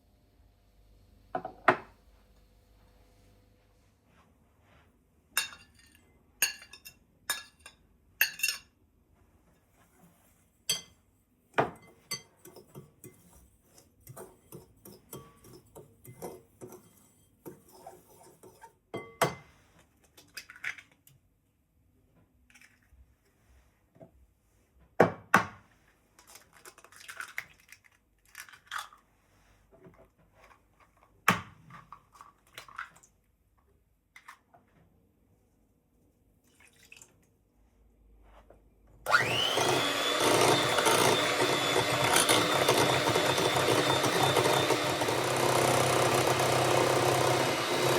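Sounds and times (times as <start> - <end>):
dishes and utensils clinking: 5.4 - 8.7, 10.6 - 11.0, 11.6 - 19.6.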